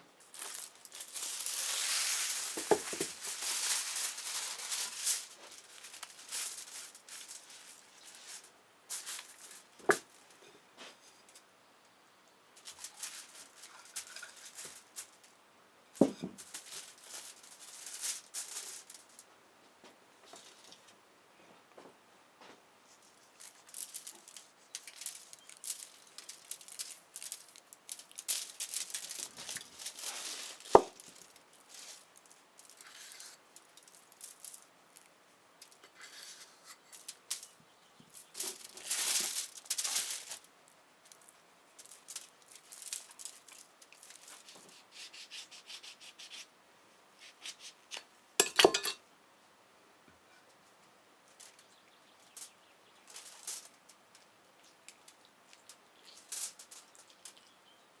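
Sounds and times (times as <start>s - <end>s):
rubbing and rustling: 0.3s - 10.2s, 22.9s - 35.1s.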